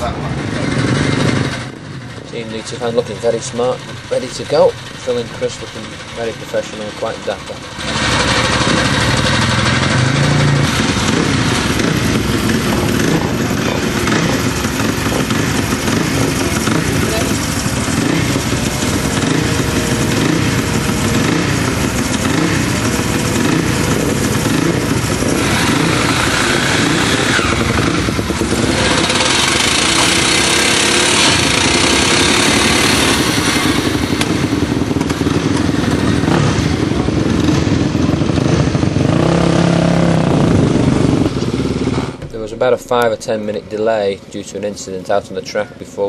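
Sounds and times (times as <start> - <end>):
motorcycle engines revving: 0.0 - 46.0.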